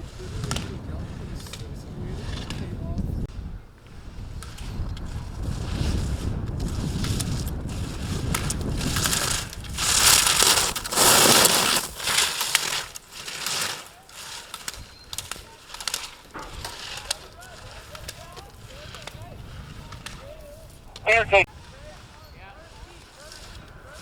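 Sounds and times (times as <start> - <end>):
ski edges scraping on hard snow: 0.0 - 24.0
scattered clicks: 6.6 - 19.2.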